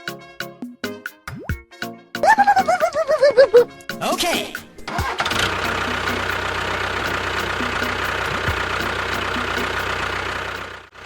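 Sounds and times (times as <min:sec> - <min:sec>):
tractor engine idling: 0:03.7 - 0:11.0.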